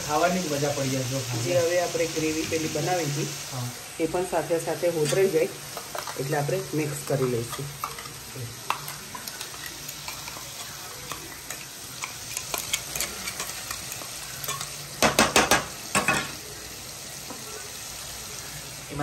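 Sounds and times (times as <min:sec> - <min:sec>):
gravy sizzling in a pan: 0:00.0 - 0:19.0
wooden spatula scraping and stirring: 0:07.3 - 0:14.6.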